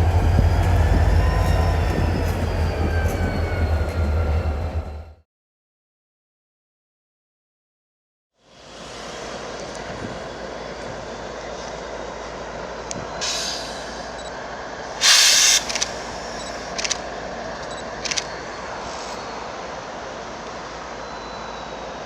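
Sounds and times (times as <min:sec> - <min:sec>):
train rumbling by: 0:00.0 - 0:05.2, 0:08.4 - 0:22.0
air hiss blasts: 0:13.2 - 0:14.0, 0:15.0 - 0:16.4.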